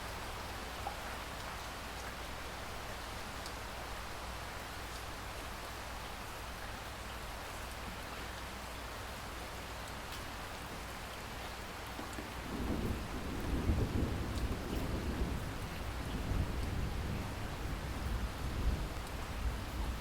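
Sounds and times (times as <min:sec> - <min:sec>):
steady rain: 0:00.0 - 0:20.0
rumble of thunder: 0:12.3 - 0:20.0.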